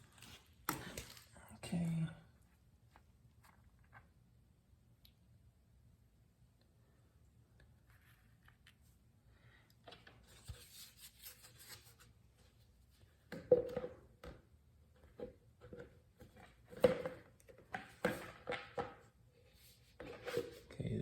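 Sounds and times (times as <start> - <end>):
oil containers knocking and clunking: 13.3 - 19.1.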